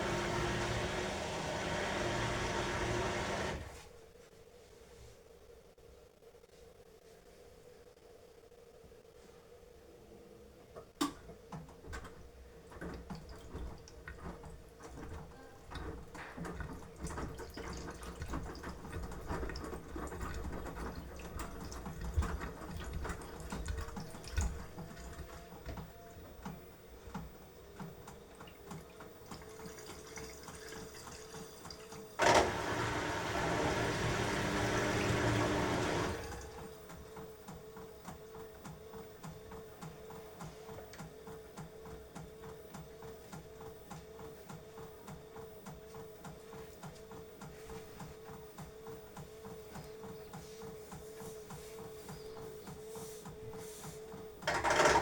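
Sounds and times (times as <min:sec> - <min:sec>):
washing machine drum sloshing: 0:11.9 - 0:26.4, 0:27.8 - 0:36.8.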